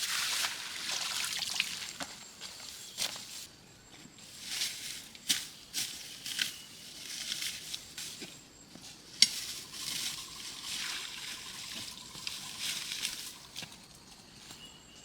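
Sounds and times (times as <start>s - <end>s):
water splashing and sloshing: 0.0s - 2.8s, 9.7s - 13.7s.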